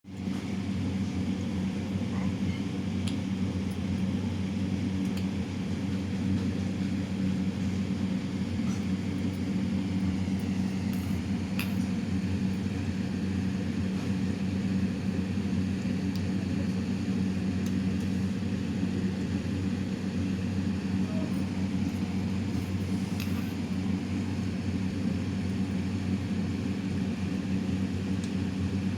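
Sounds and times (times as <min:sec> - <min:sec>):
appliance motor humming: 0:06.8 - 0:28.9.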